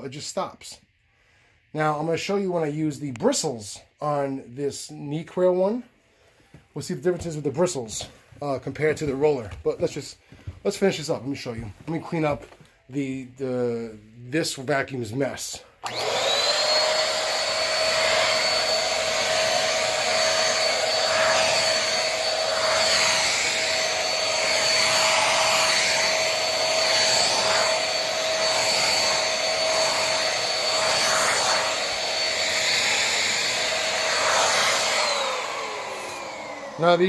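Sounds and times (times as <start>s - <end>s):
vacuum cleaner motor whine: 15.8s - 37.0s.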